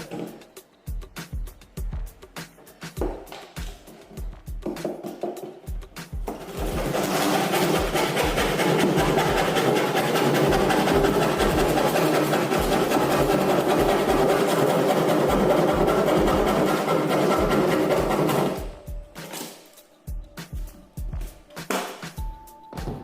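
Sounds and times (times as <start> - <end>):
power tool running on wood: 6.7 - 18.6.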